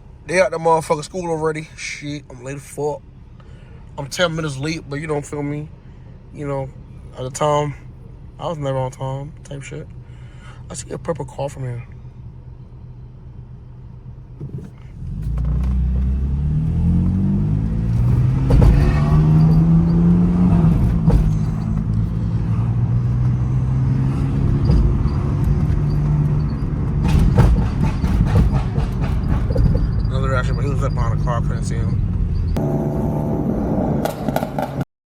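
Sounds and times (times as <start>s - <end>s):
car engine accelerating: 9.4s - 34.9s
sharp knocks: 17.6s - 22.2s, 23.8s - 30.6s.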